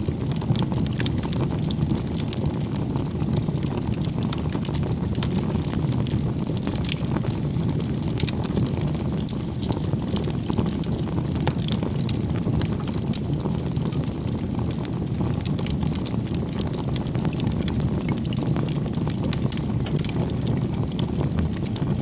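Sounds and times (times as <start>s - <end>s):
bonfire crackling: 0.0s - 22.0s.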